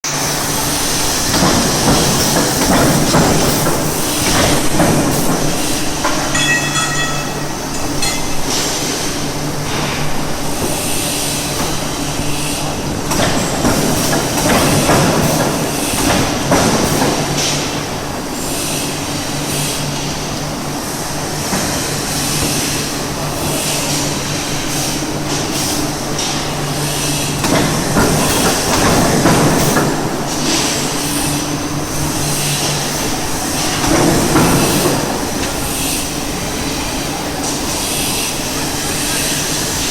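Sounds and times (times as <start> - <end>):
forging press humming: 0.4 - 10.8.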